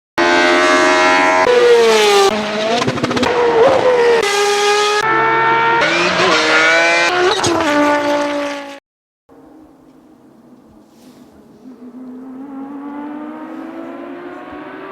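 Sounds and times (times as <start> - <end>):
car engine revving high: 0.2 - 8.8, 11.7 - 14.9.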